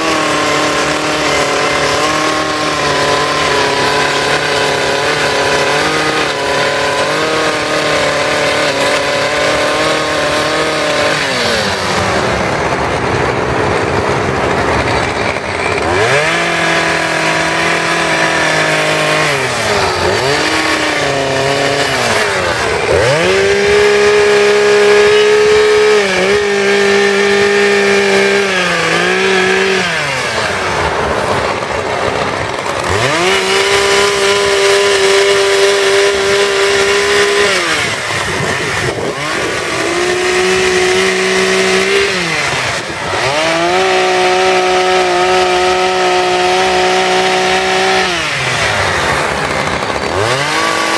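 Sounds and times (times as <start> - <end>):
chainsaw engine revving: 0.0 - 50.9.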